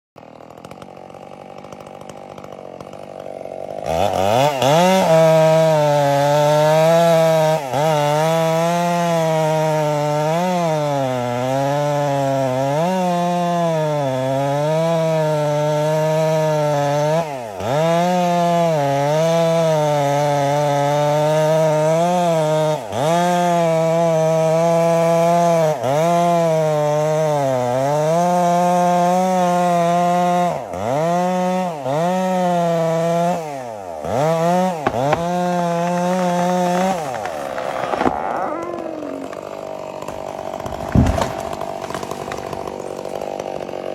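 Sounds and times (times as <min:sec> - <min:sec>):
chainsaw cutting wood: 0:00.2 - 0:43.9.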